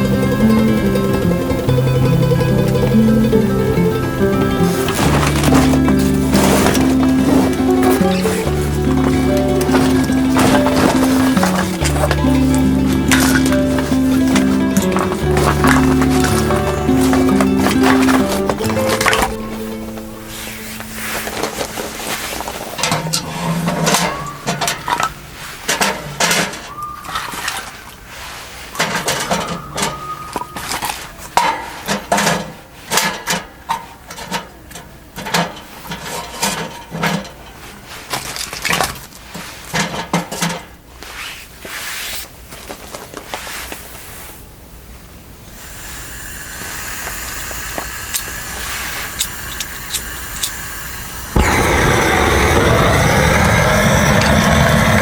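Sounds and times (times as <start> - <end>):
steady hiss: 0.0 - 23.9, 43.2 - 55.0
hard objects clattering and clinking: 4.4 - 26.7
loud low rumble: 51.4 - 55.0.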